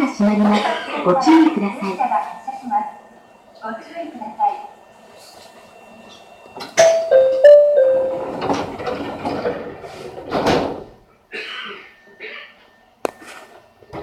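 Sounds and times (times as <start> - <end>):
train doors closing with thuds: 6.6 - 11.0
four-note electronic door chime: 6.8 - 8.7.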